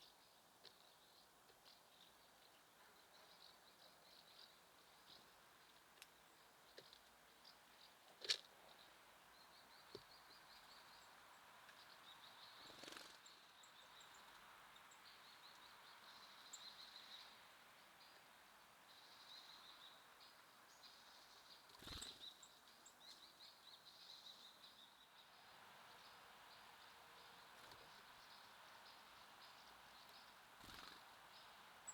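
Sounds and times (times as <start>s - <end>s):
songbirds twittering: 0.0s - 31.9s.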